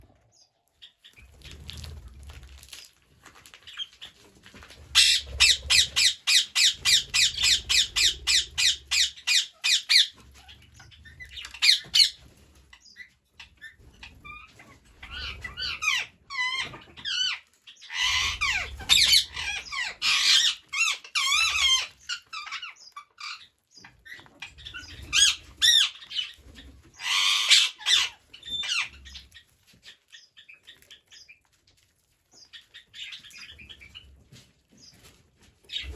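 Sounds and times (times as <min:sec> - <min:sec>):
chattering and warbling calls: 0:05.0 - 0:12.2, 0:14.6 - 0:23.5
parrots squawking: 0:05.0 - 0:12.2, 0:15.0 - 0:23.5, 0:24.6 - 0:26.3, 0:26.9 - 0:29.0.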